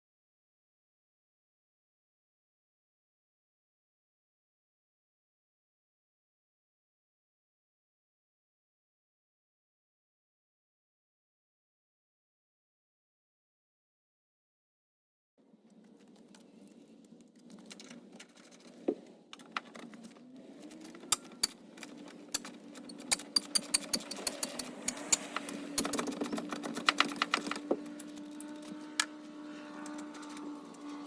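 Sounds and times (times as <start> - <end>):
sharp clicks and rattles: 15.6 - 31.0.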